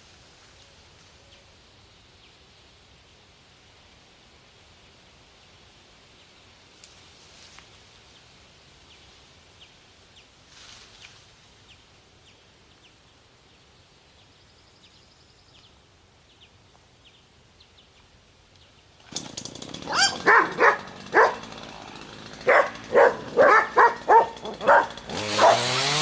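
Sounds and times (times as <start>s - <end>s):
brief rustle: 10.5s - 11.4s.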